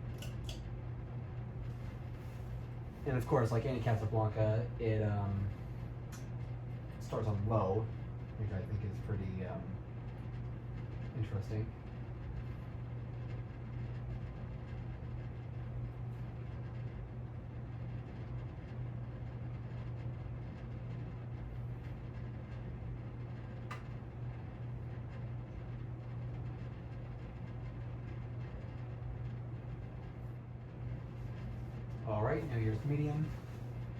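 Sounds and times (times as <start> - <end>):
ceiling fan motor hum: 0.0 - 33.9
fan switch click: 0.1 - 0.7, 23.6 - 24.0.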